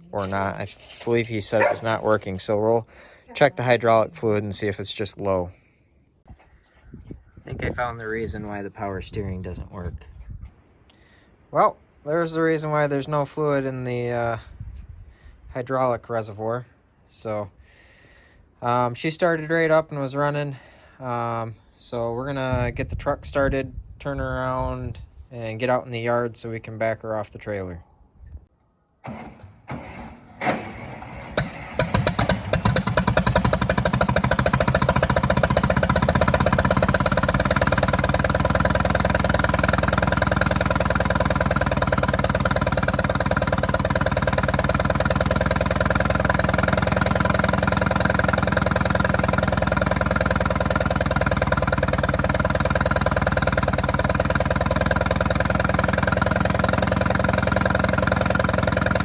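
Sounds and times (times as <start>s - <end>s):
vehicle engine starting and idling: 29.0s - 59.0s.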